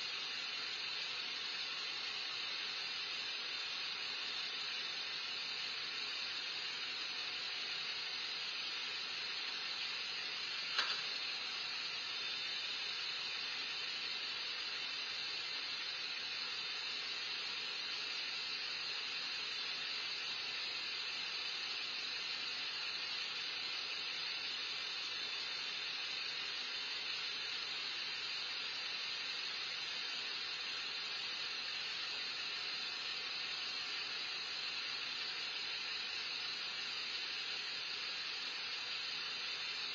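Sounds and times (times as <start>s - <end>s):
steady hiss: 0.0s - 39.9s
brief click: 10.7s - 11.2s.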